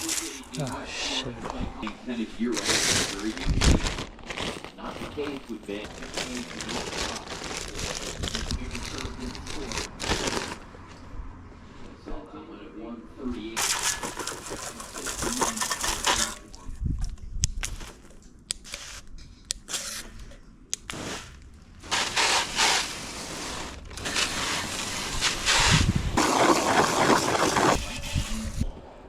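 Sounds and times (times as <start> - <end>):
water spraying hiss: 24.6 - 27.8.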